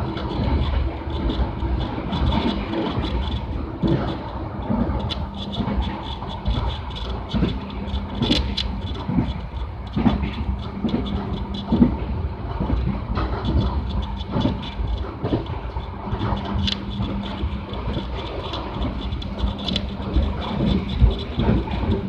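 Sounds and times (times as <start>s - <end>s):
faint constant hum: 0.0s - 22.0s
knocks and clicks of train: 0.0s - 22.0s
train rumbling along track: 0.0s - 22.0s.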